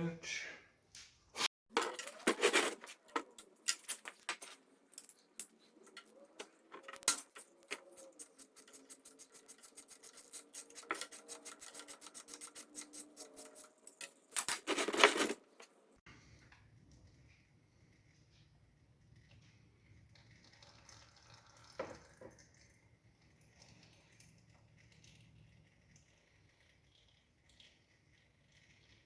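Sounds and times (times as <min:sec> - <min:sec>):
metal clattering scrape: 0:01.7 - 0:15.7.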